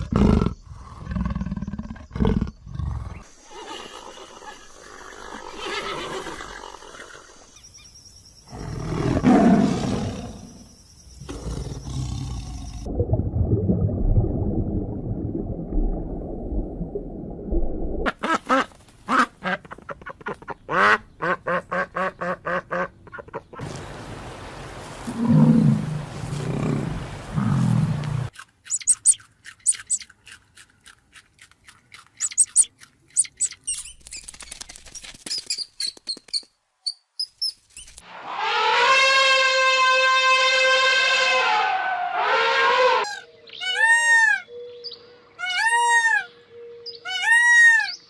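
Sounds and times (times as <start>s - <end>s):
animal growling: 11.3s - 12.9s, 25.1s - 28.3s
high chirps and clicks: 28.3s - 30.8s, 31.4s - 38.0s.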